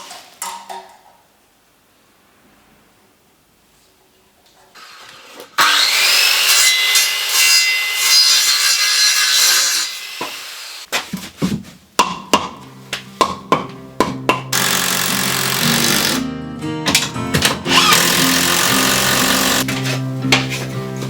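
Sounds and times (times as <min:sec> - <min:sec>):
saw cutting wood: 0:05.6 - 0:10.9, 0:14.5 - 0:16.2, 0:17.7 - 0:19.7.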